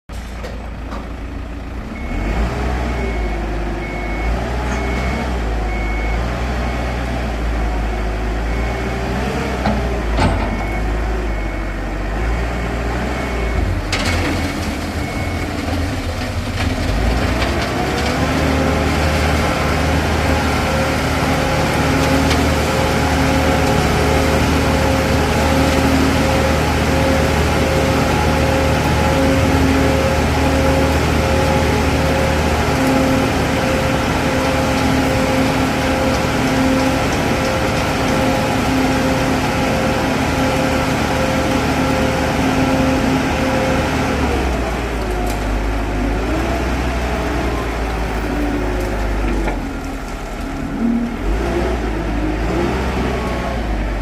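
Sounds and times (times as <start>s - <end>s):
heavy diesel engine running: 0.1s - 54.0s
reversing alarm beeps: 2.0s - 7.1s, 10.2s - 12.3s, 13.1s - 15.7s.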